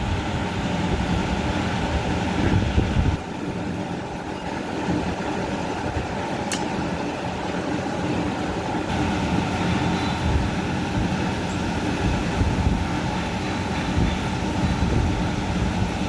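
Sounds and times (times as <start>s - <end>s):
diesel engine rumbling: 0.0s - 16.0s
sharp metallic click: 6.5s - 6.8s.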